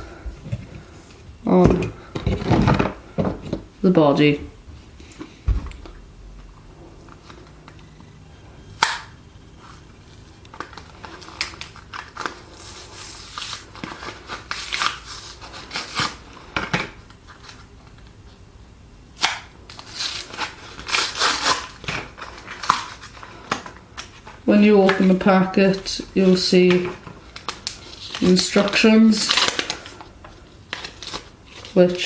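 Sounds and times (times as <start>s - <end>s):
packet crinkling and rustling: 8.8s - 18.1s, 19.7s - 32.0s.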